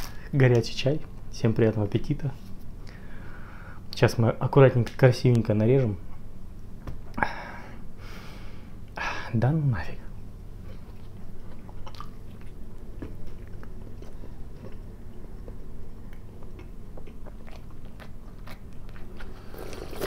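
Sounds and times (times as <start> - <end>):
wet chewing and mouth smacks: 10.7 - 20.0.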